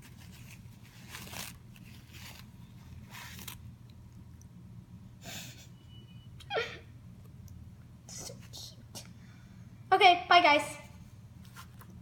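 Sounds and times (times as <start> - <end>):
paper ripping and rustling: 0.0 - 3.6.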